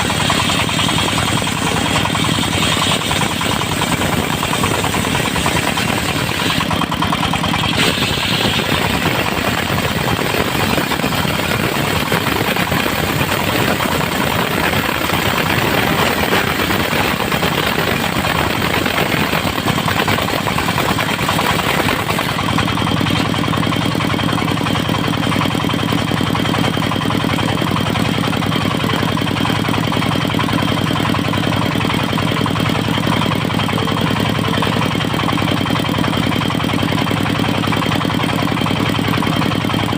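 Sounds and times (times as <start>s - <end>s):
high whine of spinning blade: 0.0s - 22.6s
dense rushing noise: 0.0s - 23.0s
sawmill engine droning: 0.0s - 39.9s.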